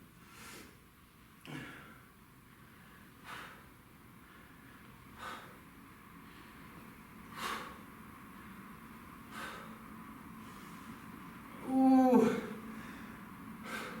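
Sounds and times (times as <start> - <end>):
man breathing out hard: 2.7 - 3.7, 5.2 - 5.6, 7.3 - 7.8, 9.3 - 9.8, 12.2 - 14.0.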